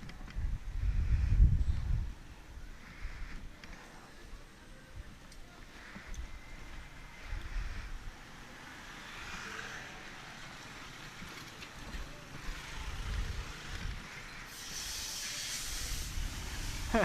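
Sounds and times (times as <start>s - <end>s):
wind rumbling on microphone: 0.0s - 3.8s, 6.0s - 8.4s, 11.2s - 14.4s, 15.6s - 17.0s
traffic and road noise hiss: 0.1s - 17.0s.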